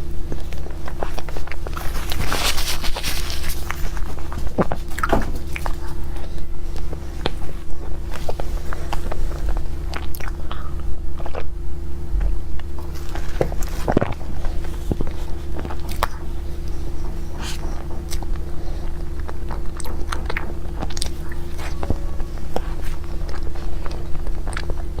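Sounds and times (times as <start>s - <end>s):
chewing with crisp crunches: 0.0s - 25.0s
low hum: 0.0s - 25.0s.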